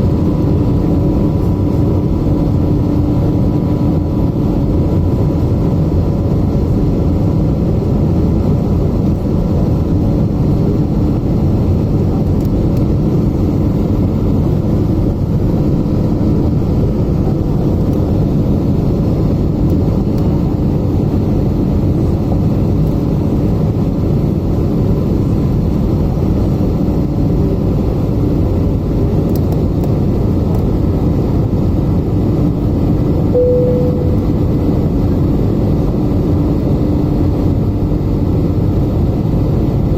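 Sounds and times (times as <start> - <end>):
jet engines droning in cabin: 0.0 - 39.9
brief single tone: 33.3 - 34.8
low hums: 33.3 - 35.4.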